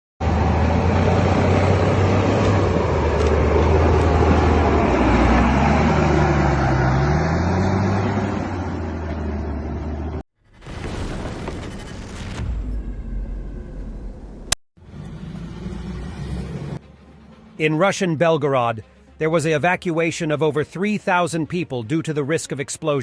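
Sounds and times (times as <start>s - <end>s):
vehicle engine running: 0.2s - 10.2s, 12.7s - 17.6s.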